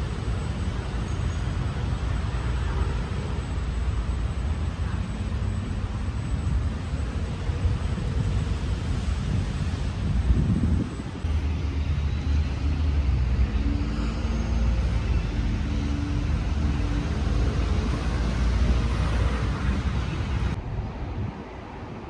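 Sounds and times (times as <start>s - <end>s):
vehicle engine rumbling: 0.0s - 20.6s
city street traffic: 0.0s - 22.0s.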